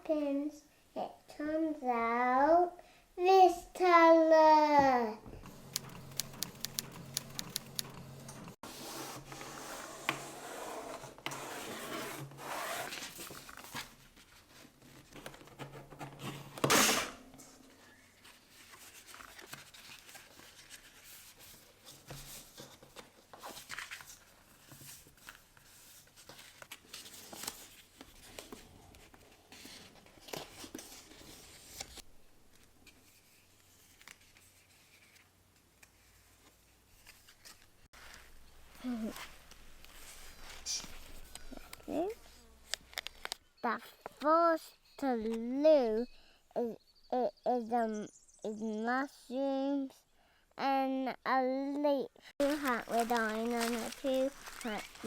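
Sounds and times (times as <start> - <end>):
rubbing and rustling handling: 5.2 - 43.4, 52.4 - 55.0
brief scraping or tearing noise: 16.6 - 17.3.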